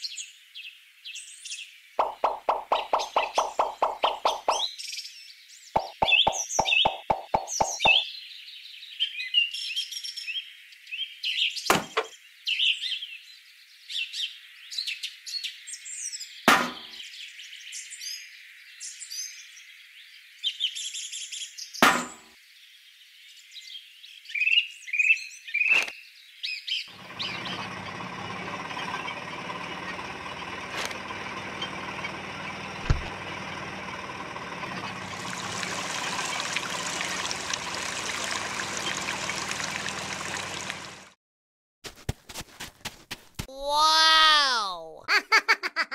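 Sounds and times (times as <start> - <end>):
sharp knocks: 2.0 - 4.6, 5.8 - 8.0
birds chirping: 2.0 - 4.8, 5.7 - 8.1, 26.9 - 33.6, 34.6 - 41.0
thump: 32.9 - 33.1.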